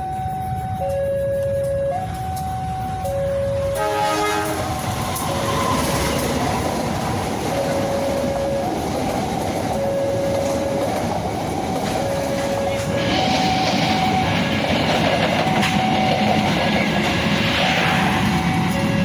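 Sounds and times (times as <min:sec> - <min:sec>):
two-tone crossing alarm: 0:00.0 - 0:19.0
train wheels clattering: 0:01.6 - 0:19.0
train horn blast: 0:03.4 - 0:06.3.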